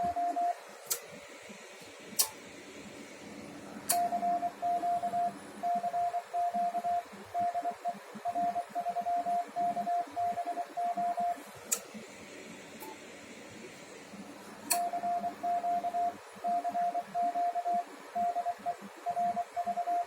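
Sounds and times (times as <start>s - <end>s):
sharp click: 2.2s - 2.4s, 11.7s - 11.9s, 14.7s - 14.9s
morse code tone: 4.0s - 11.4s, 14.8s - 20.0s.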